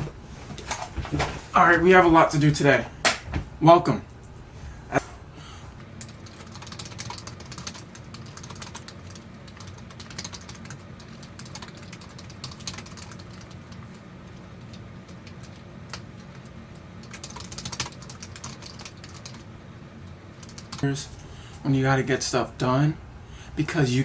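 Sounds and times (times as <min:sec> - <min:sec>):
typing on computer keyboard: 0:05.8 - 0:20.8.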